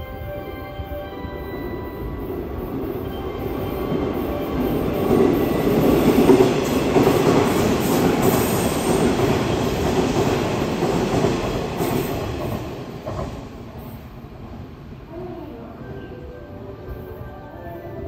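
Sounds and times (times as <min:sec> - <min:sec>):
train wheels rumbling on rails: 0:02.2 - 0:15.4.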